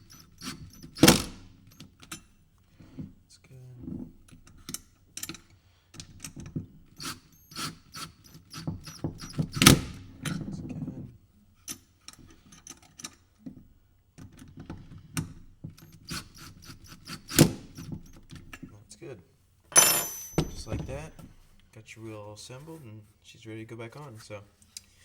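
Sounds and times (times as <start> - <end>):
hand tools clicking and knocking: 0.0 - 2.2, 19.7 - 21.3.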